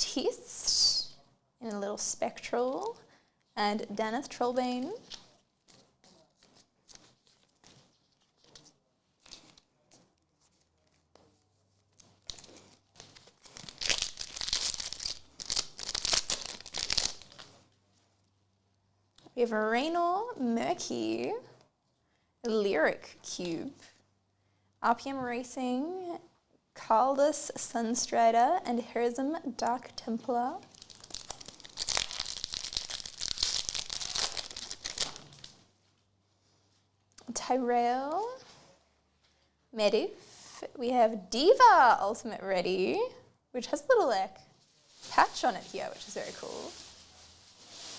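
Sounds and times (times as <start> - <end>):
foil wrapper tearing and crinkling: 13.2 - 17.5, 30.6 - 35.6.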